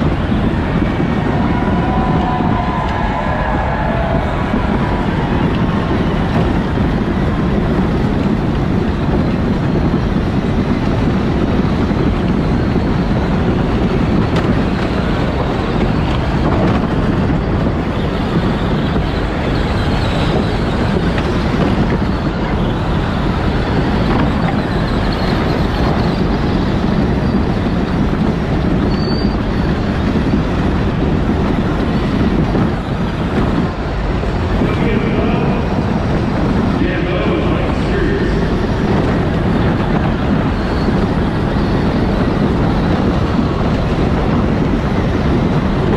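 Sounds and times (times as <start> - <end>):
toy car running noise: 4.2 - 36.8.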